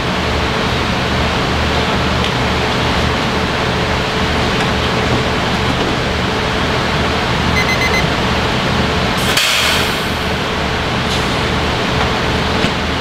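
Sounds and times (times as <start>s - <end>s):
diesel train running: 0.0s - 13.0s
short high beeps: 7.6s - 8.1s
hiss of air: 9.2s - 10.4s.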